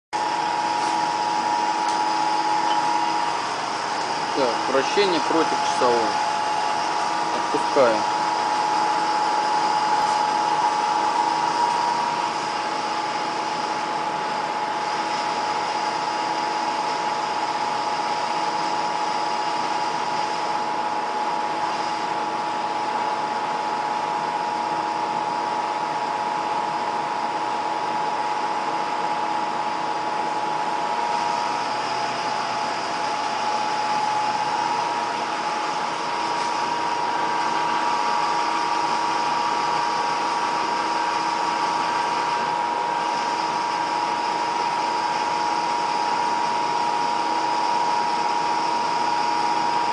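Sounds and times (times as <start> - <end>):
motor whirring with whine: 0.2 - 49.9.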